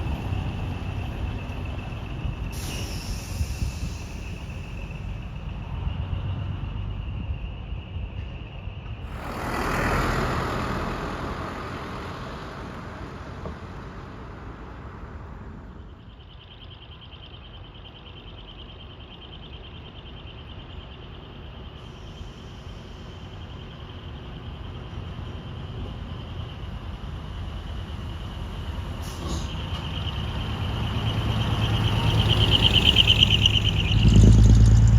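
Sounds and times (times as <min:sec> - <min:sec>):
loud rush of passing truck: 0:00.0 - 0:05.7, 0:09.0 - 0:16.2, 0:27.3 - 0:34.9
truck engine rumble: 0:00.0 - 0:07.0, 0:07.7 - 0:16.5, 0:22.8 - 0:34.9
pulsing insect chirp: 0:09.1 - 0:28.8, 0:29.5 - 0:34.9.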